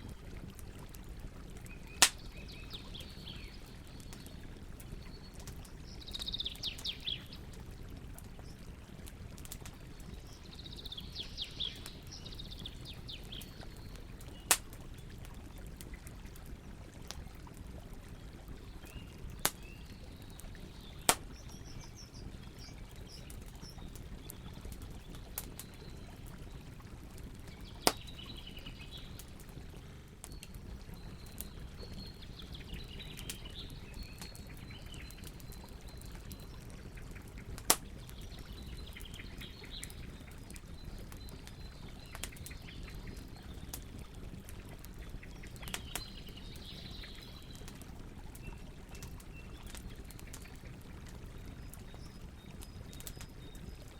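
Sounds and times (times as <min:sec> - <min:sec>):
campfire hissing: 0:00.3 - 0:02.4, 0:14.4 - 0:15.4
birds singing trills: 0:01.7 - 0:07.4, 0:10.1 - 0:14.5, 0:18.8 - 0:26.3, 0:27.5 - 0:29.3, 0:30.2 - 0:43.8, 0:45.1 - 0:47.7.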